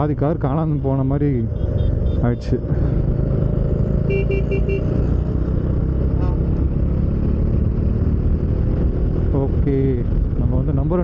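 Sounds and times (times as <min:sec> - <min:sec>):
motorcycle engine and wind rumble: 0:00.0 - 0:11.0
vehicle horn beeps: 0:04.1 - 0:05.0.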